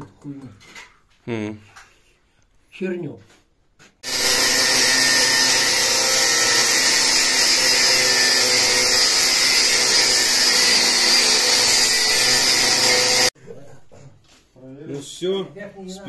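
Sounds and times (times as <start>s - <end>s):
power tool cutting steel: 4.0s - 13.4s.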